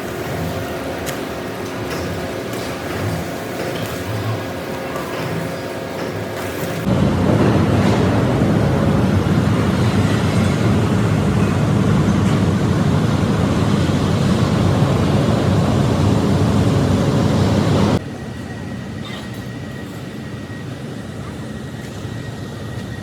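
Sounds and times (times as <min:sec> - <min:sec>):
industrial machinery rumble: 0:00.0 - 0:18.0.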